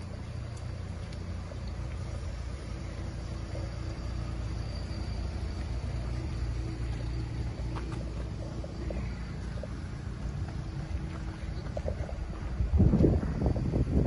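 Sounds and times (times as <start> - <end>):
car engine idling: 0.0 - 14.0
faint steady hum: 0.0 - 14.0.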